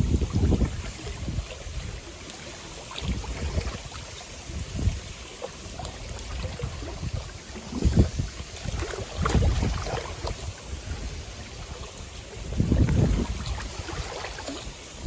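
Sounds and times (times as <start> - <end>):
strong wind gusting on microphone: 0.0 - 2.1, 3.0 - 15.0
water lapping at shore: 0.0 - 15.0.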